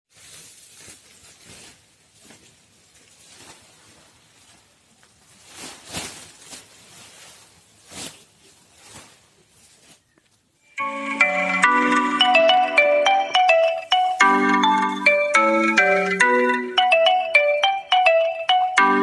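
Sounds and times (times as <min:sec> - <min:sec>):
rustling and scraping: 0:00.1 - 0:10.5
bright marimba tune: 0:10.7 - 0:19.0.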